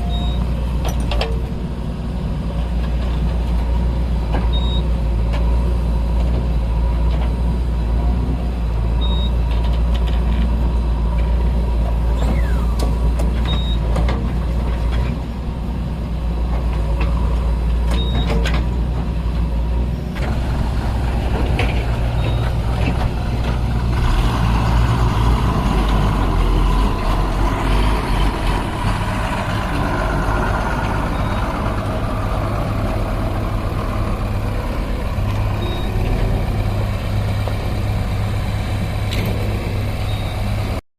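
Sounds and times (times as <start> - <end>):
heavy diesel engine running: 0.0 - 40.8
short high beeps: 35.6 - 36.0.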